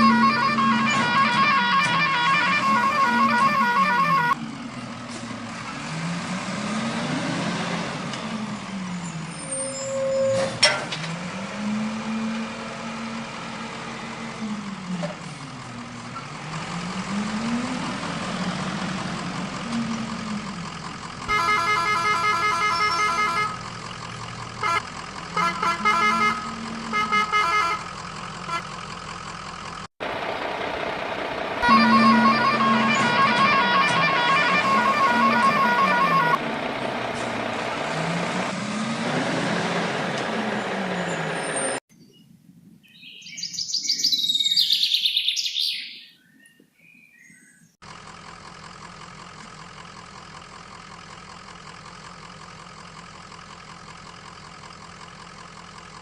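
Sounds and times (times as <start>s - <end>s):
multi-tone truck horn: 0.0s - 4.4s, 21.2s - 23.8s, 24.5s - 28.8s, 31.6s - 38.0s
truck engine revving: 0.0s - 41.8s.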